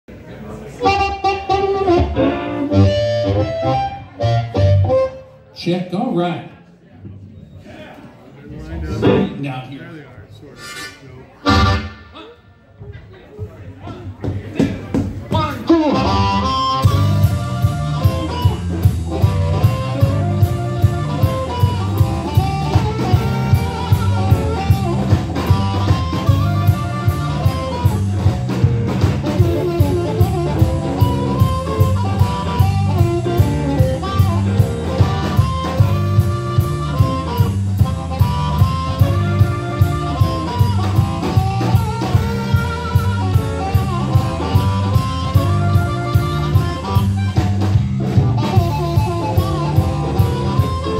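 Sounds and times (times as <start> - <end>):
electric guitar: 0.8 - 5.2, 15.6 - 50.9
bass and drum kit: 0.8 - 5.3, 8.9 - 9.6, 10.7 - 12.2, 13.8 - 50.9.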